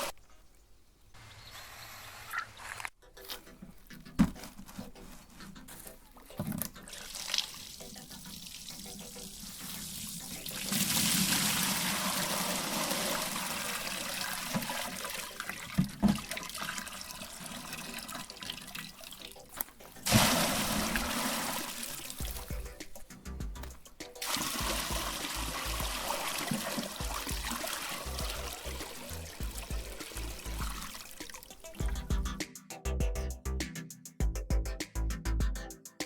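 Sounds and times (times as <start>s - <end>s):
water splashing and rushing: 8.8s - 19.4s, 20.0s - 22.6s, 24.2s - 31.8s.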